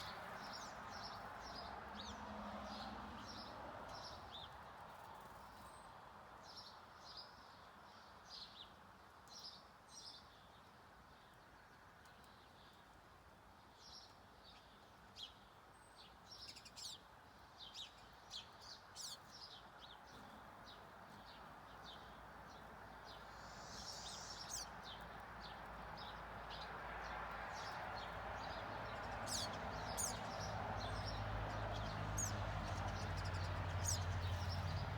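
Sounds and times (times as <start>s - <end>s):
finches chirping: 20.2s - 26.8s, 27.5s - 34.9s.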